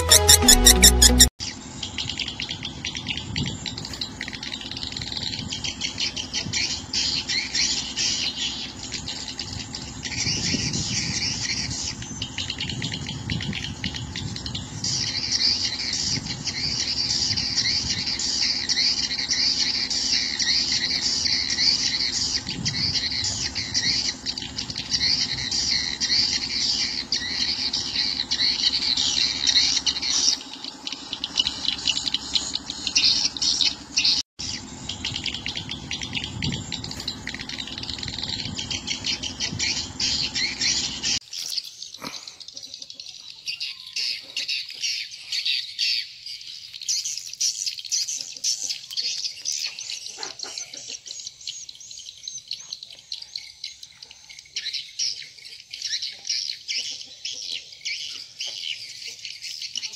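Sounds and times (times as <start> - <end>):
low hum: 0.0 - 41.2
swiftlets twittering: 0.0 - 41.2.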